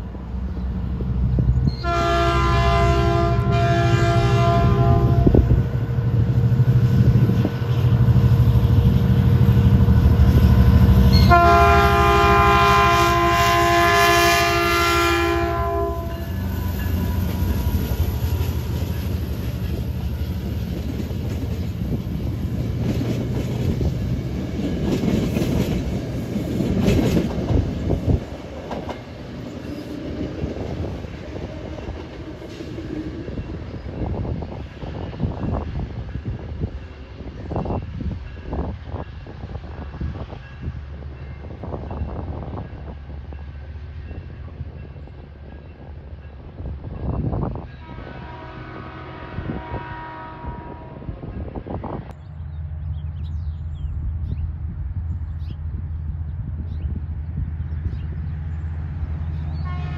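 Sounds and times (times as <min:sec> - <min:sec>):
locomotive multi-tone horn: 0:01.7 - 0:05.7, 0:11.1 - 0:17.4, 0:47.8 - 0:51.2, 0:59.6 - 0:59.9
wheels clattering on rails: 0:16.8 - 0:39.4.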